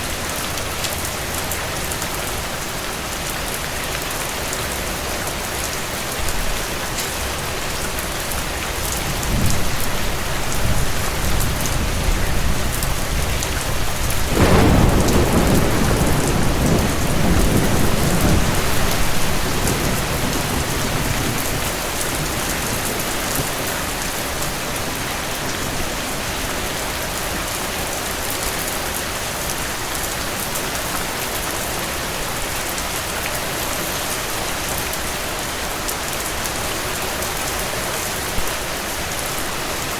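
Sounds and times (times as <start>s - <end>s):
heavy rain falling: 0.0s - 39.9s
thunder rumbling: 9.0s - 26.7s.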